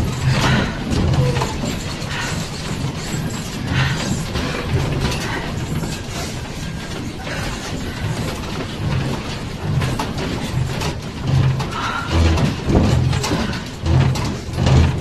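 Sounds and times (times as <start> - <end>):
building creaking and rattling: 0.0 - 15.0.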